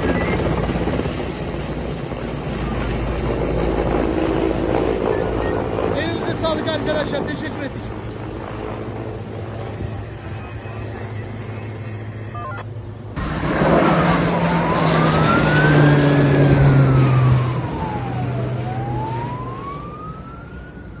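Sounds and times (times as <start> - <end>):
low engine hum: 8.1 - 21.0
siren wailing: 12.2 - 12.7, 13.6 - 21.0.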